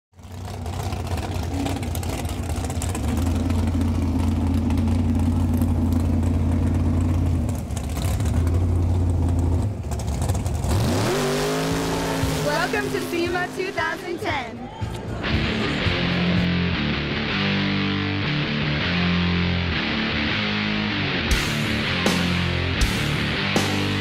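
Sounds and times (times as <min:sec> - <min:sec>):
car engine droning: 0:00.2 - 0:14.4.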